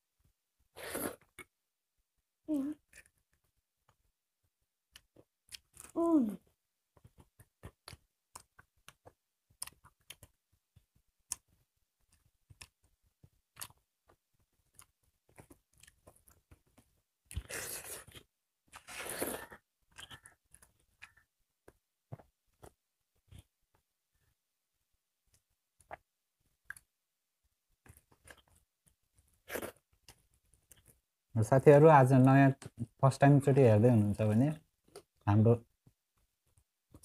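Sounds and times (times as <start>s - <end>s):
chewing: 7.0s - 12.9s, 13.5s - 23.5s.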